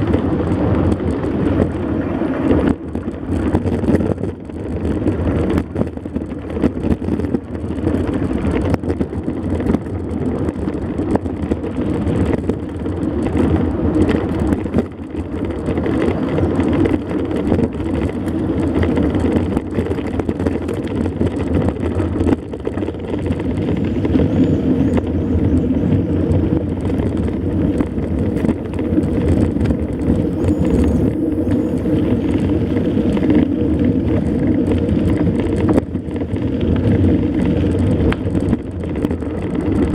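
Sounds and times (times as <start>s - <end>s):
bike rattling and knocking: 0.0s - 39.9s
bike tyres on sand and stones: 0.0s - 39.9s
wind buffeting microphone: 0.0s - 39.9s.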